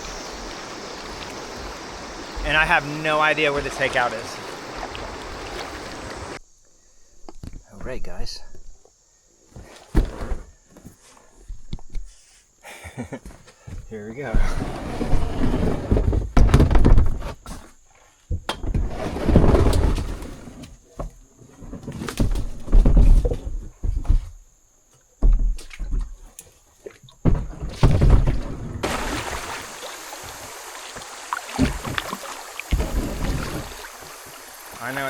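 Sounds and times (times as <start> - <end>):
kayak knocks: 0.0 - 6.4, 27.0 - 35.0
water splashing and rushing: 0.0 - 6.4, 27.7 - 35.0.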